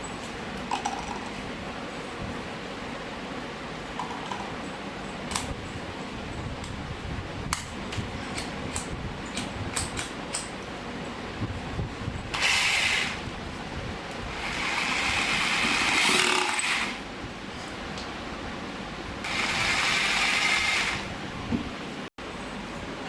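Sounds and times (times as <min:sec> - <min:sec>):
rotary hammer drill: 0:12.3 - 0:13.2, 0:14.3 - 0:17.0, 0:19.2 - 0:21.1.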